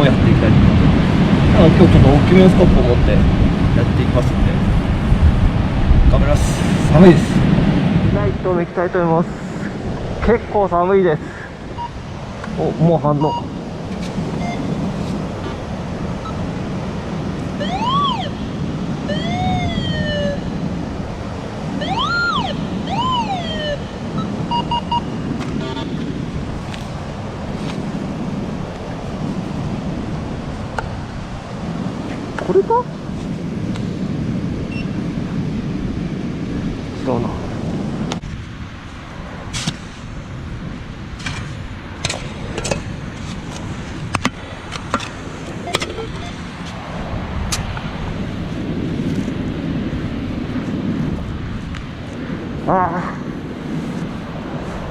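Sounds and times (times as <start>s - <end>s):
wind: 0.0s - 54.9s
short beeps: 11.8s - 12.0s, 13.2s - 13.5s, 14.4s - 14.8s, 23.3s - 26.0s, 34.7s - 35.0s, 45.6s - 46.4s
metal detector tone sweeping: 14.4s - 14.8s, 17.6s - 18.4s, 21.8s - 26.0s, 45.6s - 46.5s
shovel scraping in sand: 26.5s - 27.9s, 39.5s - 40.1s, 41.2s - 46.8s.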